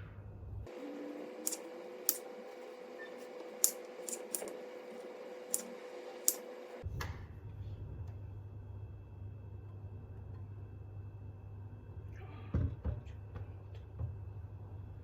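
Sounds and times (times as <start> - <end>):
steady hum: 0.7 - 6.9.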